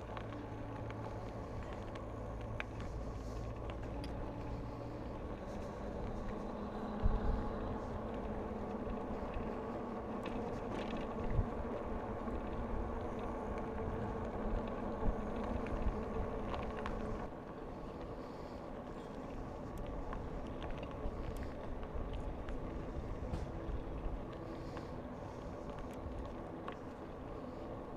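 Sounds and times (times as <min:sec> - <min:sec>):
bicycle tyre noise: 0:00.0 - 0:27.9
wind on microphone: 0:05.1 - 0:17.3.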